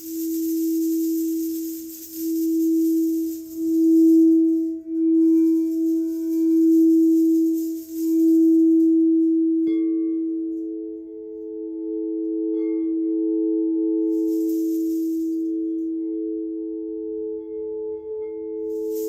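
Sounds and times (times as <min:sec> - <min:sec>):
rubbing hiss: 0:00.0 - 0:09.3, 0:14.1 - 0:15.6, 0:18.7 - 0:19.0
struck singing bowl ringing: 0:00.0 - 0:16.6
singing bowl low tone: 0:00.0 - 0:19.0.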